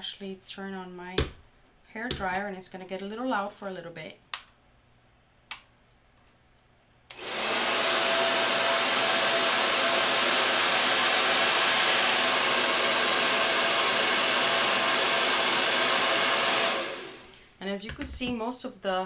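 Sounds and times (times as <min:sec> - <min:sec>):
hair dryer running: 0:07.1 - 0:17.4.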